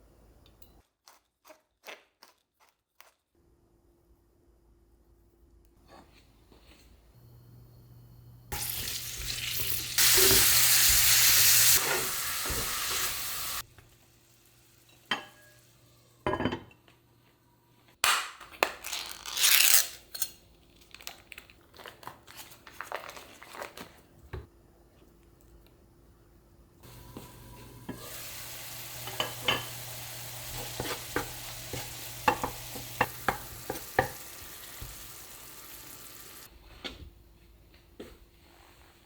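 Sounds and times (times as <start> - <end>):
food sizzling in a frying pan: 8.5 - 16.1, 26.8 - 36.5
utensil knocking and scraping pan: 30.5 - 34.2.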